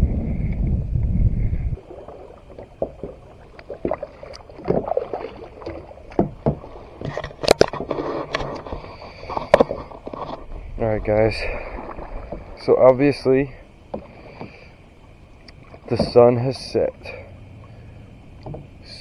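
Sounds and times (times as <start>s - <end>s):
low rumble: 0.0s - 2.2s, 10.4s - 13.6s
water sloshing and gurgling: 0.0s - 19.0s
knocks and clicks against hull: 0.4s - 17.1s, 18.3s - 19.0s.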